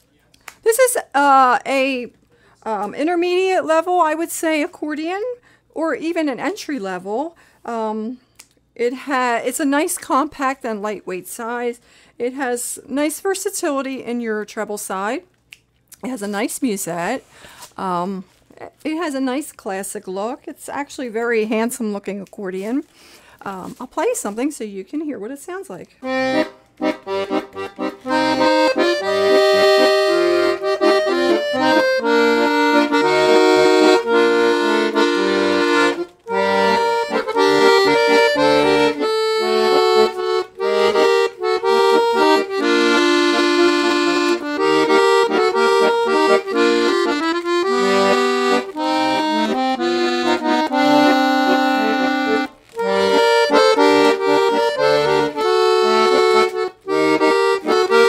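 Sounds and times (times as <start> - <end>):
accordion playing melody: 26.0 - 58.0.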